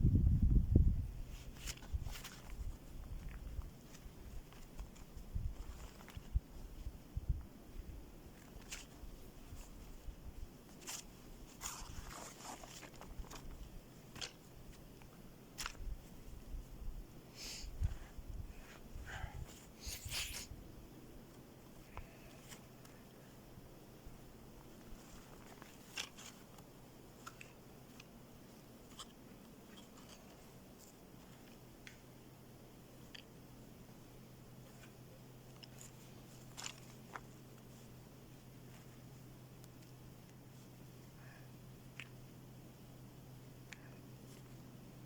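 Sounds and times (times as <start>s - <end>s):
short crunches and rustles: 1.2s - 6.9s, 8.3s - 16.5s, 24.6s - 32.1s, 34.6s - 40.8s.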